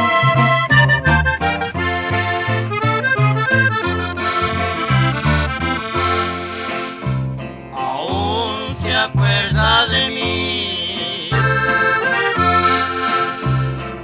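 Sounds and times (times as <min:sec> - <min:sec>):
button accordion playing: 0:00.0 - 0:07.3, 0:10.2 - 0:14.0
pulsing bass line: 0:00.0 - 0:14.0
person singing: 0:07.7 - 0:12.4.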